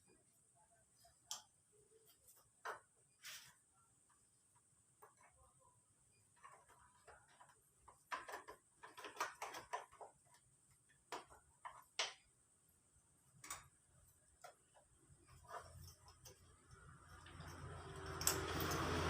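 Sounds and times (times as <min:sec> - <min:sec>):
tools clicking and tapping: 0:06.2 - 0:12.4, 0:13.4 - 0:19.0.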